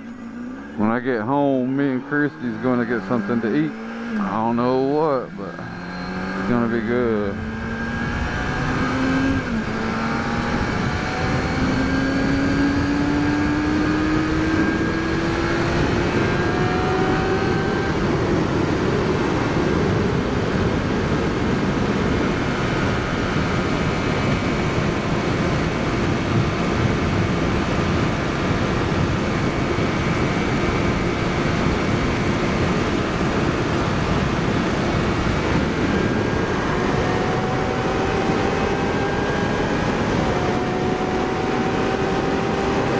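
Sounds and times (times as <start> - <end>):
wind rush on microphone: 7.4 - 42.9.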